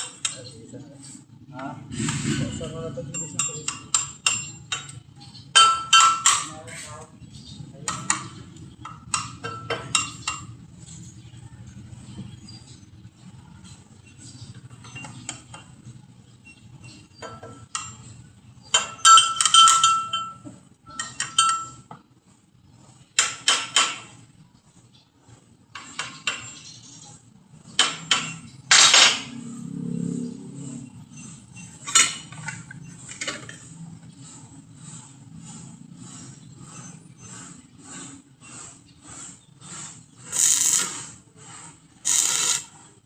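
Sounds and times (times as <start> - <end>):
metal tools clanking: 2.3 - 7.0, 17.1 - 22.0.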